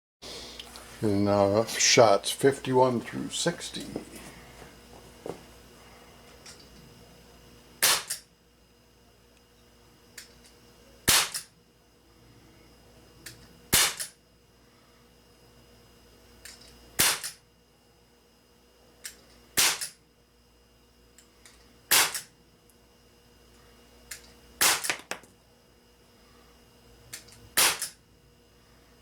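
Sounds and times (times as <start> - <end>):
air pistol shots cracking: 7.8 - 8.3, 11.0 - 11.5, 13.7 - 14.2, 17.0 - 17.4, 19.6 - 20.0, 21.9 - 22.3, 24.6 - 25.2, 27.5 - 28.0.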